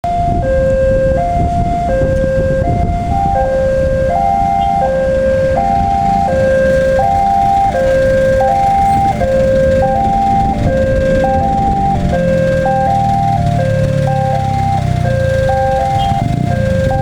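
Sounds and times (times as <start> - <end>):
low rumble: 5.2 - 17.0.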